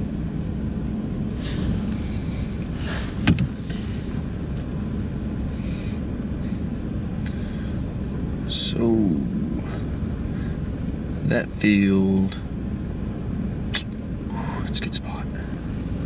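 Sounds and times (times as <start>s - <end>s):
vehicle rumble inside cab: 0.0s - 16.0s
sharp click: 13.8s - 14.0s.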